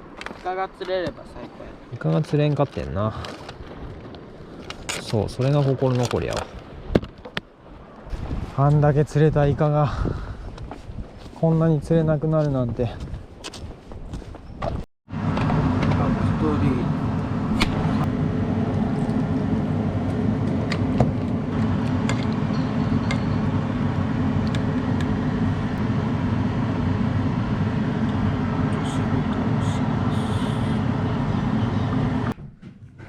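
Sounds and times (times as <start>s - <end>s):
vehicle rumbling: 13.9s - 33.0s.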